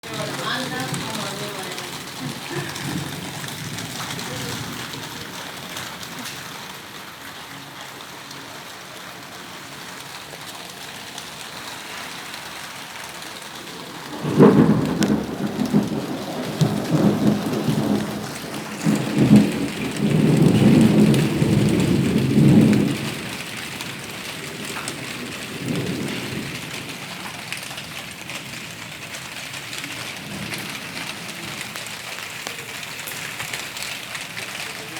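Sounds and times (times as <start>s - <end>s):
thunder clap and rumbling: 0.0s - 6.7s, 13.4s - 29.0s
steady rain hissing: 0.0s - 34.9s.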